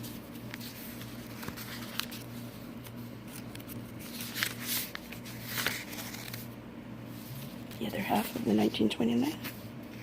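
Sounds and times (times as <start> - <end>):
paper pages rustling: 0.0 - 10.0
steady low hum: 0.0 - 10.0.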